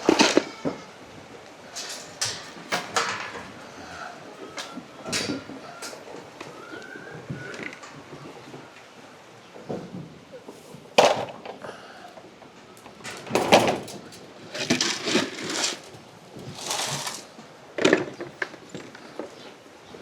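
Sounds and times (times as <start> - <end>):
grain pouring: 14.5 - 17.3.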